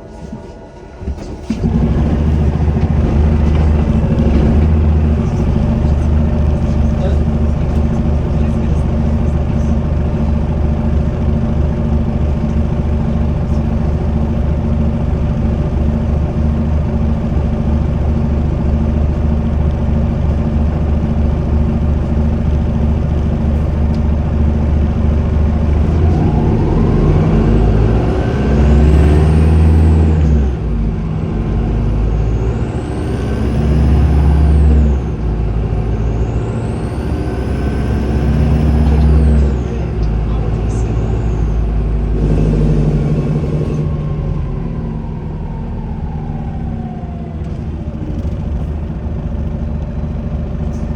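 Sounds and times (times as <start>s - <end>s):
bus diesel engine running: 0.0s - 50.9s
turbocharger whistling: 31.7s - 40.0s, 40.6s - 48.4s.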